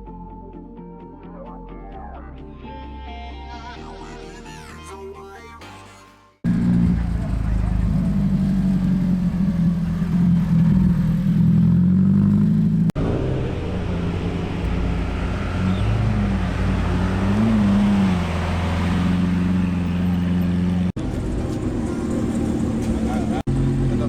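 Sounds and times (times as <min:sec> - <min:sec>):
car engine rumbling: 0:06.5 - 0:24.0.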